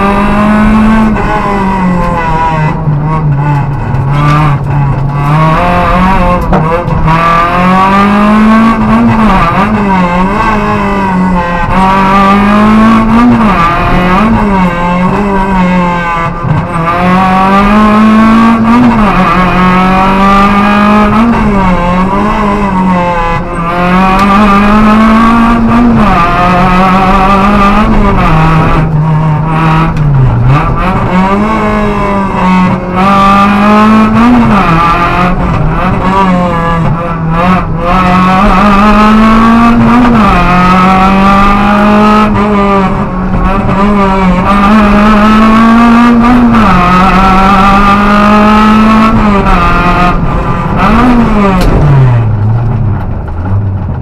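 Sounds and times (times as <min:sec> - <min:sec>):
car engine at high revs: 0:00.0 - 0:54.0.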